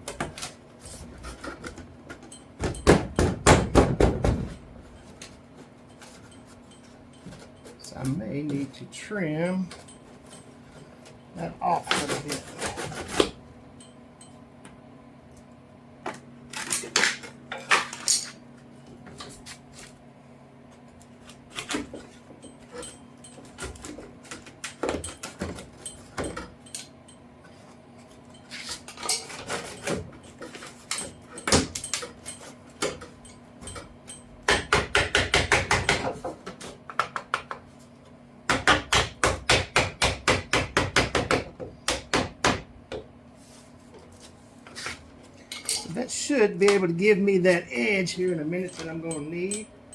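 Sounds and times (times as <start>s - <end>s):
hand tools clinking on metal: 45.4s - 49.9s.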